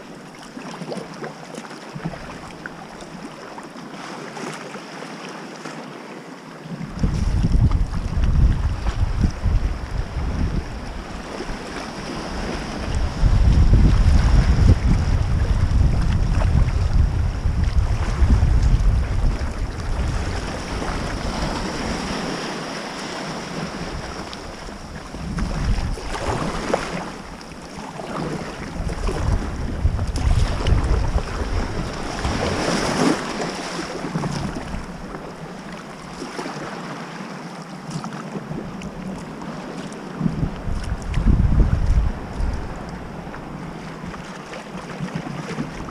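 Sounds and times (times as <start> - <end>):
water lapping and splashing: 0.0 - 45.9
wind buffeting microphone: 6.9 - 22.8, 23.4 - 36.2, 40.1 - 44.3, 45.0 - 45.9.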